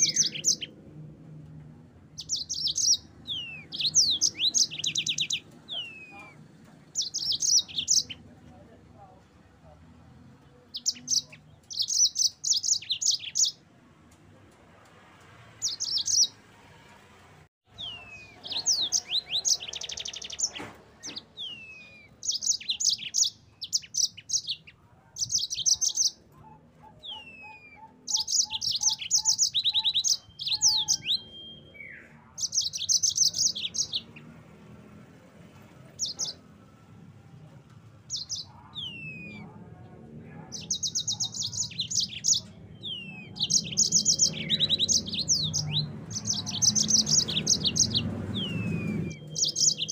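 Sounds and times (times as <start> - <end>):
canary trilling and whistling: 0.0 - 0.7, 2.2 - 6.4, 7.0 - 8.2, 10.7 - 13.6, 17.7 - 34.2, 38.1 - 39.6, 40.5 - 49.9
evenly spaced lower bird notes: 0.0 - 0.8, 2.1 - 6.4, 17.7 - 34.2, 40.6 - 49.9.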